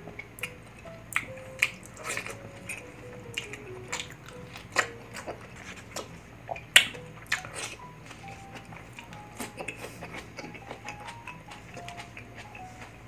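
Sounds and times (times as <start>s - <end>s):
person chewing food: 0.0s - 13.0s
sharp biting clicks: 0.2s - 7.8s.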